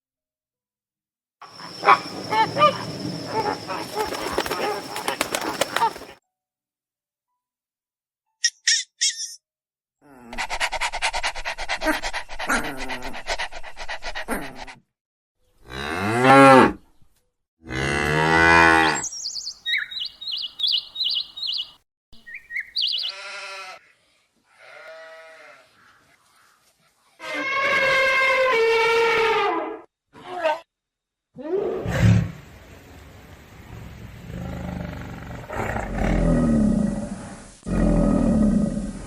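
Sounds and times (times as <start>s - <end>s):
high animal chirps: 1.4s - 6.2s, 8.4s - 9.4s, 18.8s - 23.4s
drawn-out animal calls: 1.5s - 6.2s, 18.8s - 23.8s.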